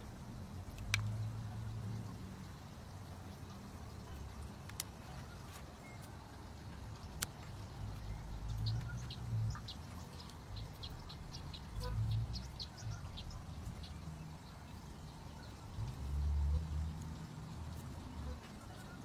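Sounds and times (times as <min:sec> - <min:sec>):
small birds chirping: 0:00.0 - 0:19.0
steady low rumble: 0:06.2 - 0:18.5.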